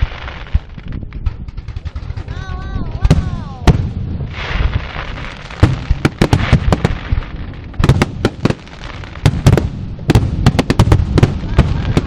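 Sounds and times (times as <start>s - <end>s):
firework hiss: 0.0s - 1.0s, 3.4s - 12.0s
fireworks banging: 0.0s - 12.0s.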